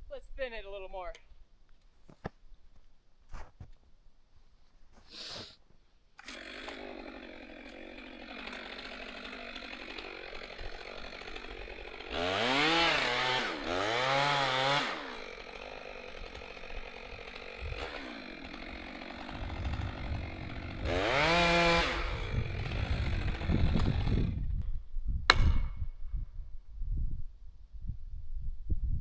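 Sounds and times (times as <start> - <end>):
chainsaw engine running: 6.2 - 24.5.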